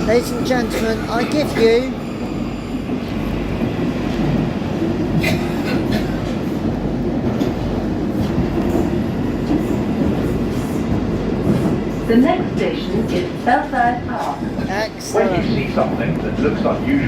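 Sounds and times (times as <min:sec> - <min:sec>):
train rumbling through a tunnel: 0:00.0 - 0:17.0.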